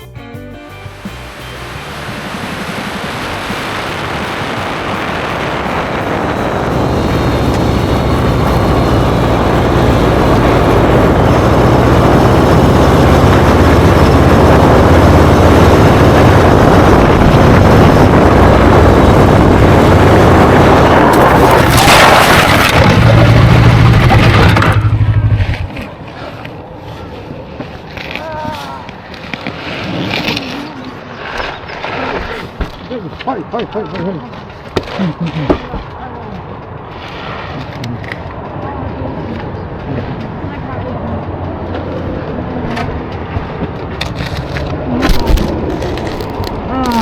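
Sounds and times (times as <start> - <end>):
motorcycle engine running: 0.9 - 21.9, 22.5 - 25.9
wind rush on microphone: 1.3 - 25.8.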